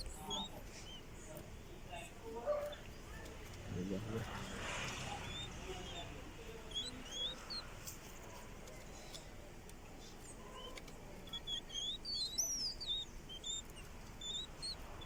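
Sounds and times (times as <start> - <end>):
songbird chirping and whistling: 0.0 - 1.3, 4.9 - 7.7, 10.2 - 15.0.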